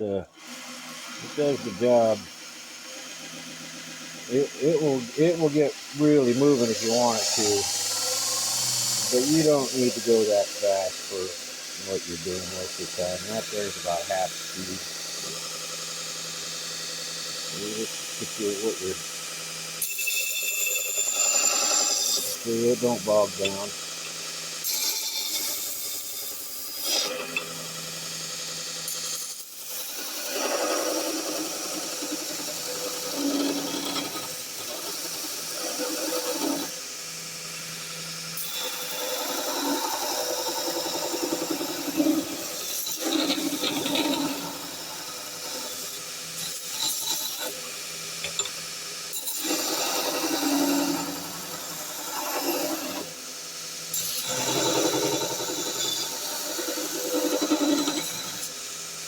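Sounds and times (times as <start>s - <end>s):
belt sander grinding: 0.0s - 59.0s
motor hum: 0.4s - 19.9s.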